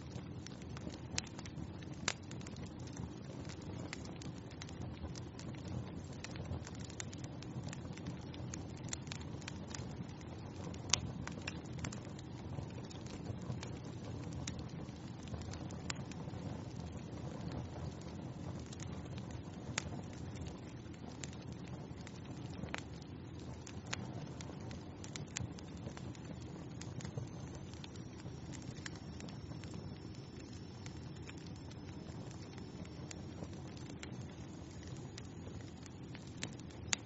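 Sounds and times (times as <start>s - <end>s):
fire crackling and popping: 0.0s - 37.0s
low rush of flames: 0.0s - 37.0s.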